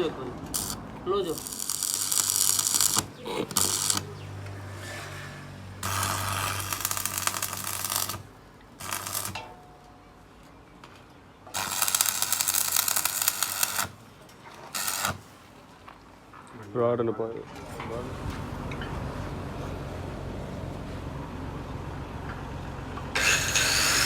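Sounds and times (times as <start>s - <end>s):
welder humming: 0.4s - 5.2s, 5.8s - 9.4s, 11.5s - 14.0s, 14.7s - 15.3s, 23.2s - 24.0s
welding arc crackling hiss: 0.5s - 4.2s, 5.8s - 9.4s, 11.5s - 14.0s, 14.7s - 15.3s, 23.2s - 24.0s.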